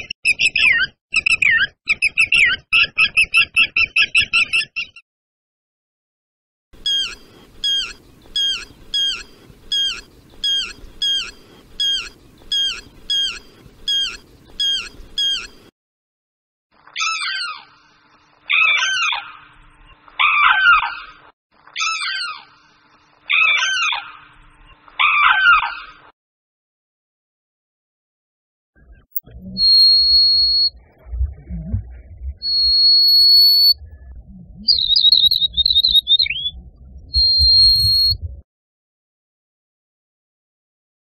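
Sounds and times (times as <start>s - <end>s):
crane drawn-out calls: 6.8s - 15.7s
lapwing calling sharp notes: 6.8s - 15.7s, 29.1s - 30.8s, 32.4s - 33.8s, 34.6s - 36.6s, 37.2s - 38.2s.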